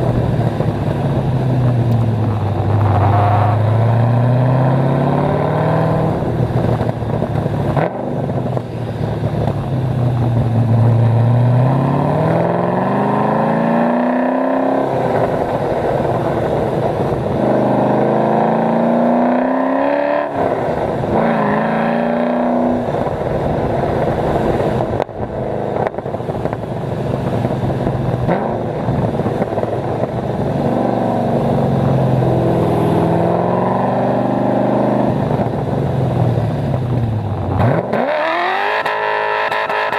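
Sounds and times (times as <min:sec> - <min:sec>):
car engine revving hard: 0:02.8 - 0:06.3, 0:10.6 - 0:24.5, 0:30.6 - 0:35.4, 0:37.5 - 0:39.9.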